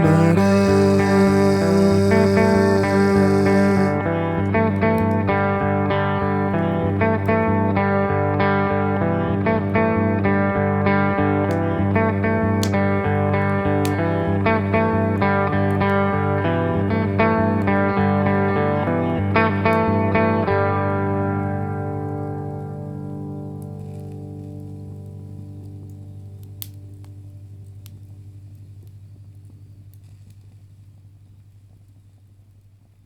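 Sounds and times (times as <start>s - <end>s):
steady low drone: 0.0s - 19.5s
picked guitar figure: 0.0s - 21.6s.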